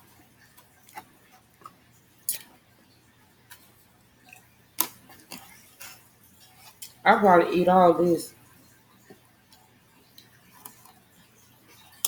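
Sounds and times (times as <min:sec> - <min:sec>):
wet mouth clicks and smacks: 0:02.3 - 0:02.5
person chewing soft food: 0:03.4 - 0:07.0.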